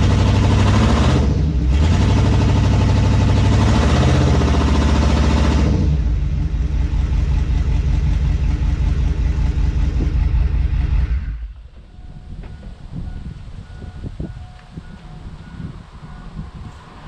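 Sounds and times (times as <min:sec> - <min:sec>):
truck engine revving: 0:00.0 - 0:11.6.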